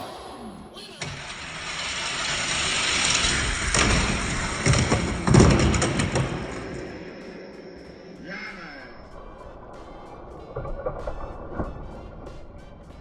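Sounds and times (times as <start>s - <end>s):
toy cars rolling on plastic track: 1.0s - 7.2s
sharp knocks and thumps: 3.7s - 6.9s.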